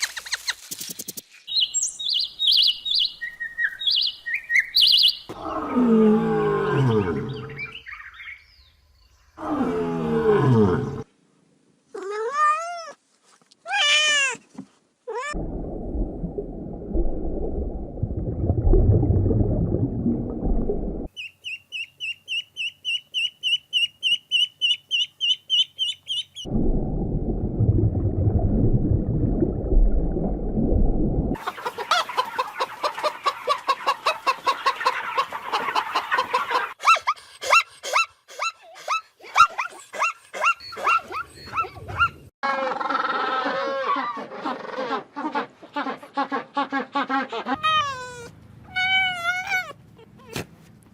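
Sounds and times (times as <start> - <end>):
drawn-out arching animal calls: 46.8 - 50.4.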